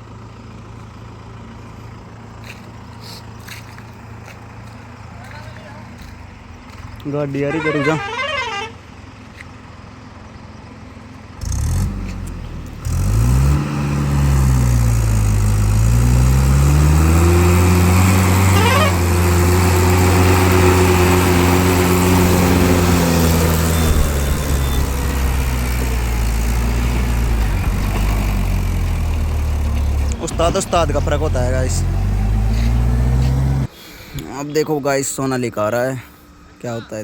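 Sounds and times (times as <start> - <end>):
tractor diesel engine revving: 9.8 - 33.9.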